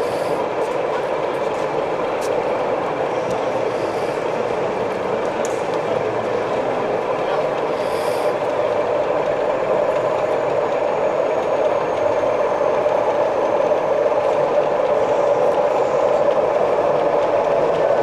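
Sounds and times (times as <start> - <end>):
model train running: 0.0 - 18.0.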